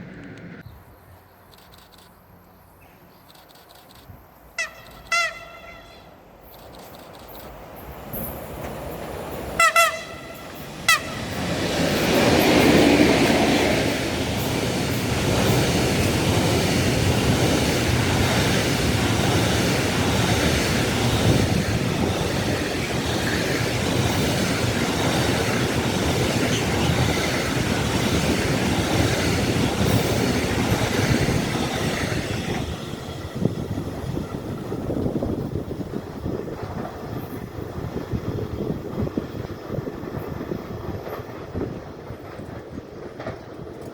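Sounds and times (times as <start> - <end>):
train wheel and rail noise: 0.0 - 43.9
train horn blasts: 4.6 - 6.1, 9.6 - 11.4.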